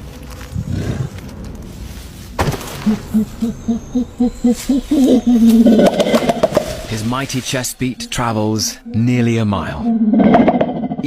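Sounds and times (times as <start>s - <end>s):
gorilla hooting: 2.8s - 6.9s.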